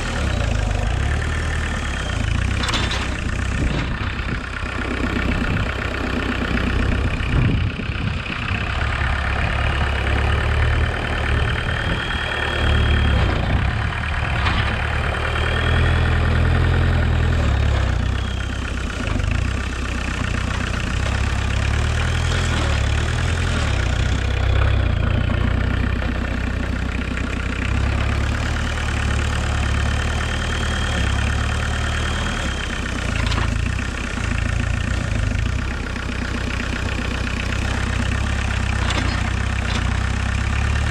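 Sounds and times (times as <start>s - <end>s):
tractor engine running: 0.0s - 40.9s
whine: 11.0s - 15.9s.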